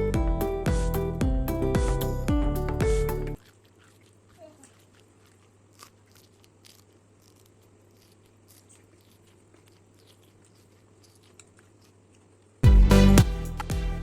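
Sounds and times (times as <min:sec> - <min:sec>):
person chewing: 0:02.7 - 0:12.6.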